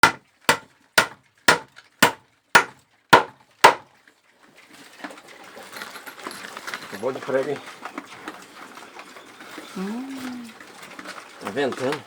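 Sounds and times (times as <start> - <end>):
hammer driving nail into wood: 0.0 - 3.8.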